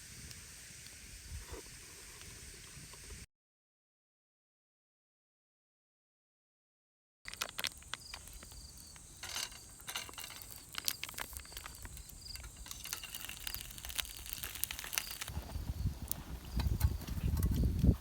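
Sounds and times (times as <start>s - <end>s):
short insect chirps: 7.3s - 16.9s
high insect drone: 7.3s - 17.8s
campfire crackling and popping: 7.3s - 18.0s.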